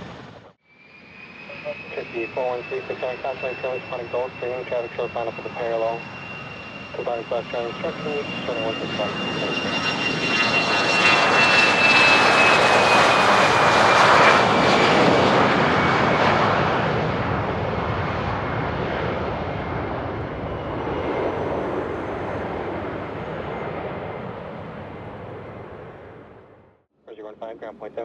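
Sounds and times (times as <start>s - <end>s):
high jet whine: 0.0s - 17.1s
jet engine passing: 0.0s - 26.6s.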